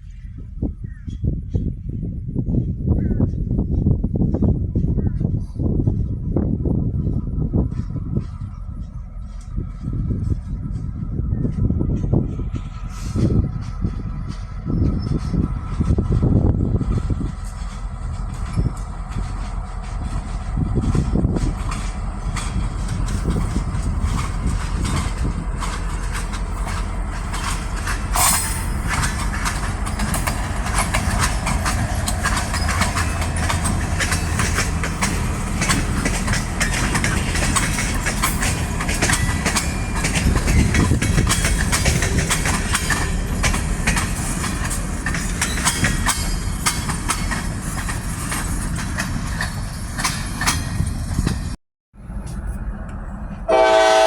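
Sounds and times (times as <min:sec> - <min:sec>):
freight train rumbling: 0:00.0 - 0:54.0
wheel clicks over rail joints: 0:17.4 - 0:51.4.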